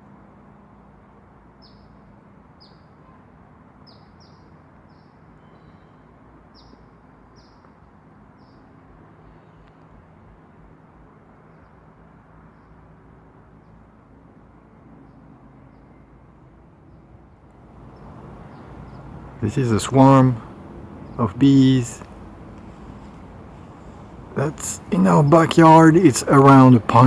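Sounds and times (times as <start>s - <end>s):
bird chirping: 17.8s - 27.0s.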